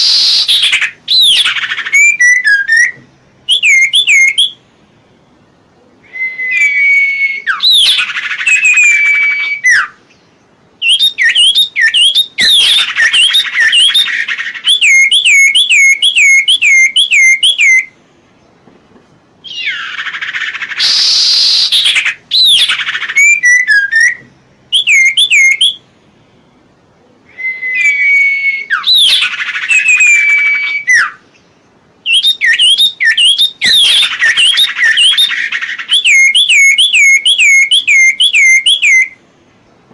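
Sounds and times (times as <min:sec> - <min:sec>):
rasping bird call: 0:00.0 - 0:04.6, 0:05.9 - 0:10.1, 0:19.4 - 0:25.8, 0:27.2 - 0:31.3
songbird whistling: 0:00.0 - 0:18.0, 0:19.4 - 0:26.6, 0:27.2 - 0:39.3.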